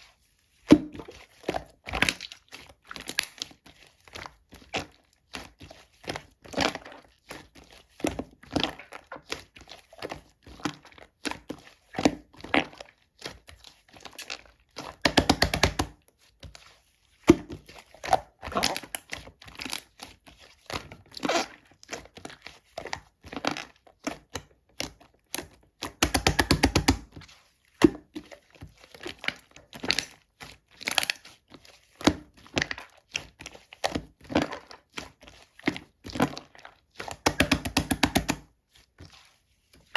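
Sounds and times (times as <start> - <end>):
slime squished by hand popping: 26.0 - 27.1.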